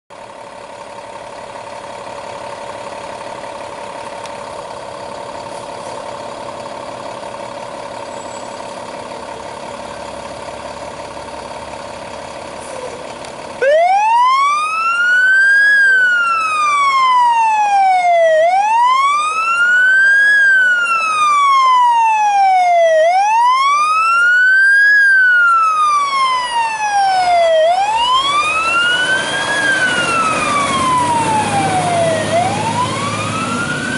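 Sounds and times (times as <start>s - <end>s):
fire engine drone: 0.1s - 33.9s
electronic siren wailing: 13.6s - 33.9s.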